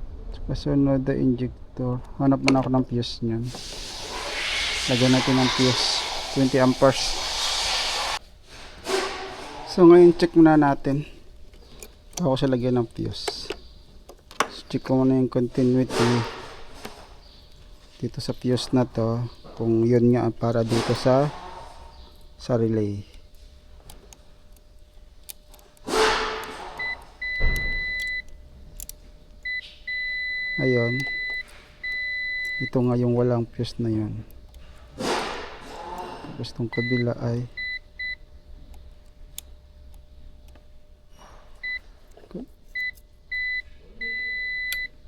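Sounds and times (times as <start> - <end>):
multimeter beeping: 26.8 - 28.4, 29.4 - 33.2, 36.7 - 38.2, 42.7 - 45.0
multimeter short high beeps: 29.5 - 32.8.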